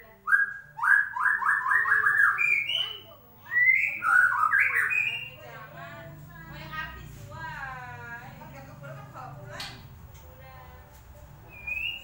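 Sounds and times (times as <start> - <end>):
bird whistled song: 0.2 - 5.5, 11.5 - 12.0.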